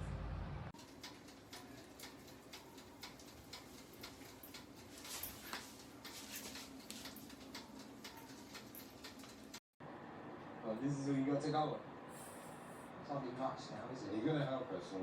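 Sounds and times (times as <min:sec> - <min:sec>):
mechanical timer ticking: 0:00.8 - 0:09.6.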